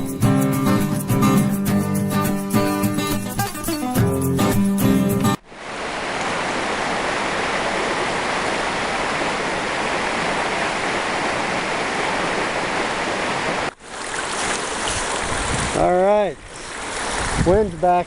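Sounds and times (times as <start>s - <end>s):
water rushing through sluice box: 5.4s - 18.0s.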